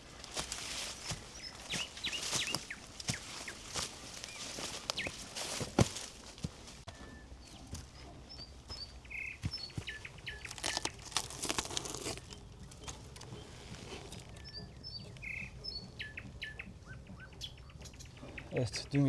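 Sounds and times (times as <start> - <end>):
small birds chirping: 0.0 - 19.0
crunching sounds: 9.4 - 15.3.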